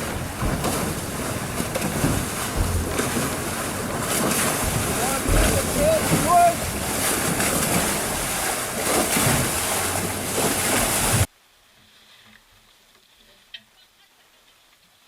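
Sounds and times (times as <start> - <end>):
water rushing around boat: 0.0 - 11.3
wind buffeting microphone: 0.0 - 11.3.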